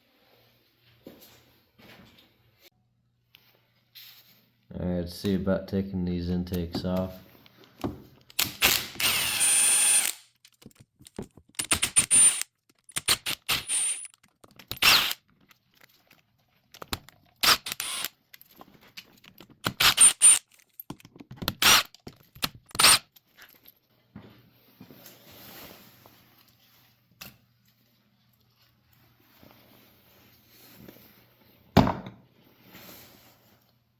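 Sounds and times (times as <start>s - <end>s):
power driver bursts: 17.4s - 18.1s.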